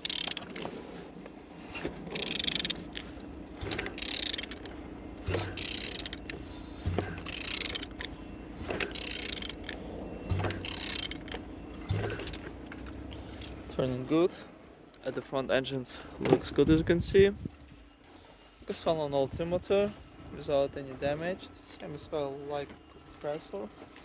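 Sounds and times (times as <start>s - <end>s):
ratchet wrench clicking: 0.0s - 0.7s, 2.1s - 12.4s, 13.3s - 13.6s.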